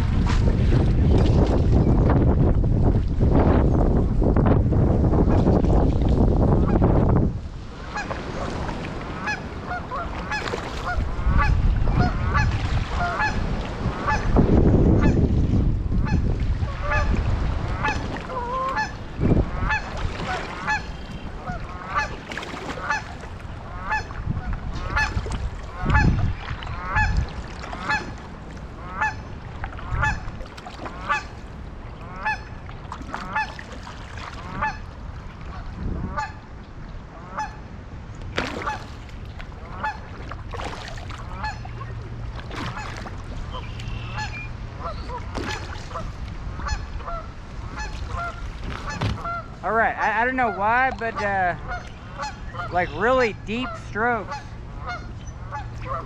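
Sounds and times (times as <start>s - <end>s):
wind rumble on microphone: 0.0s - 56.0s
geese honking: 9.2s - 13.4s, 17.7s - 24.2s, 25.7s - 28.2s, 28.8s - 30.3s, 30.9s - 31.4s, 32.0s - 32.6s, 39.7s - 40.1s, 41.3s - 41.9s, 42.7s - 56.0s.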